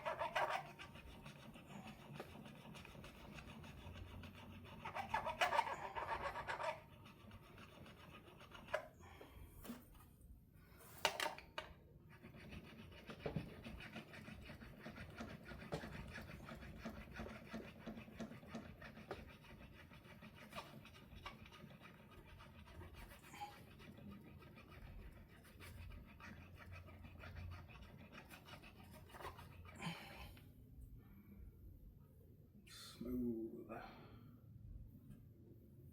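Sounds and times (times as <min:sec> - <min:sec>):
file rubbing guitar frets: 0:00.0 - 0:08.9.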